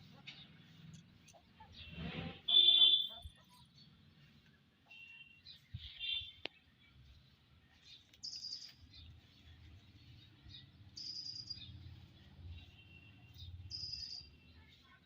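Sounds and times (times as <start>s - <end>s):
small bird buzzy trill: 11.0s - 11.8s, 12.7s - 14.6s.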